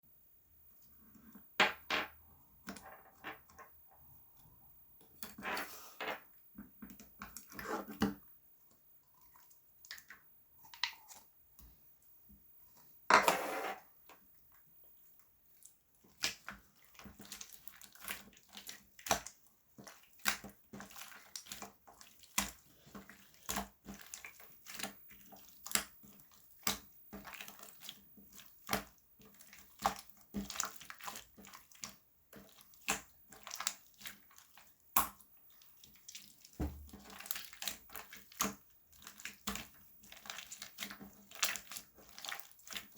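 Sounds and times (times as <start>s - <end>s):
loud slime squelch: 35.5s - 42.9s.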